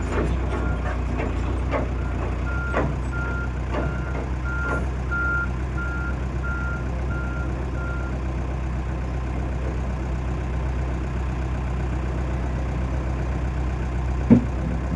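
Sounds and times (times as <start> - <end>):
diesel engine running: 0.0 - 14.9
reversing alarm beeps: 2.0 - 8.1.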